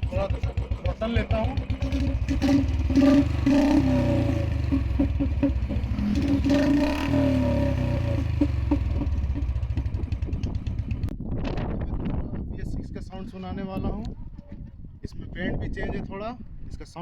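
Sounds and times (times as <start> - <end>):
motorcycle engine revving: 0.0 - 11.2.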